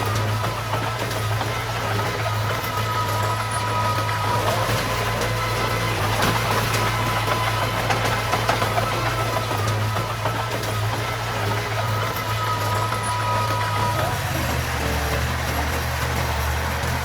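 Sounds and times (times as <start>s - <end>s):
heavy machinery diesel engine: 0.0s - 17.0s.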